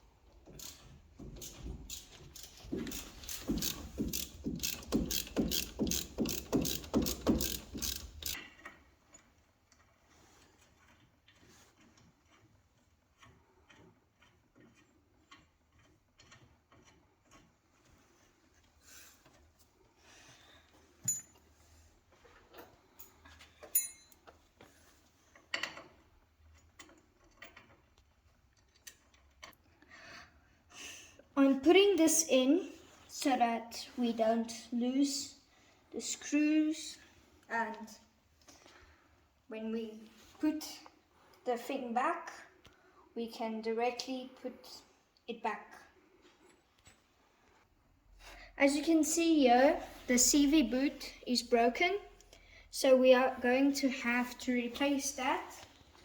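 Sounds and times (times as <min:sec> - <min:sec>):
ratchet wrench clicking: 0:00.6 - 0:00.8, 0:01.4 - 0:08.4
light metallic clinks: 0:21.0 - 0:21.5, 0:22.6 - 0:24.4.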